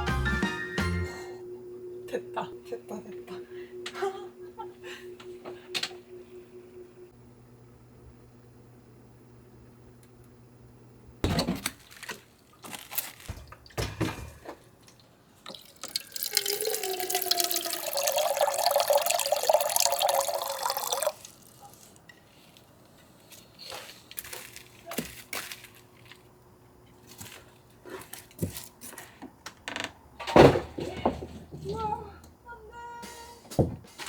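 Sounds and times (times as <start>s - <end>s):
knocks and clatters: 13.1s - 14.7s
water pouring into container: 15.4s - 21.7s.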